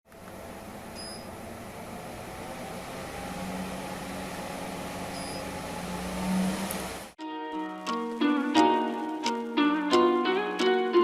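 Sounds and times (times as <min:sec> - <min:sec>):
mechanical hum: 0:00.1 - 0:07.2.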